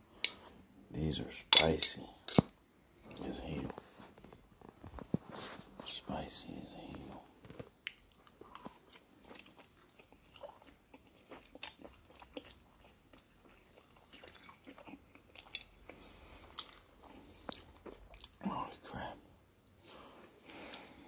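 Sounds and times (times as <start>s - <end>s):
person chewing noodles: 7.4s - 18.4s.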